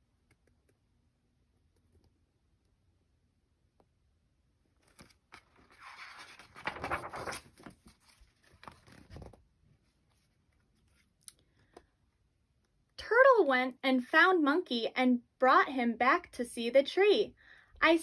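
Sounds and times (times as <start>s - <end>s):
paper page rustling: 4.8s - 9.5s.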